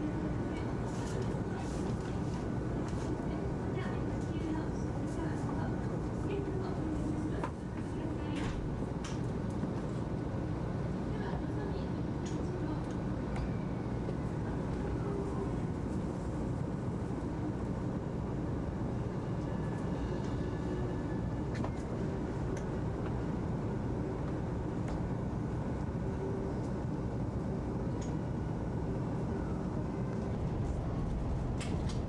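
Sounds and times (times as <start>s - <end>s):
train running: 12.4s - 32.0s.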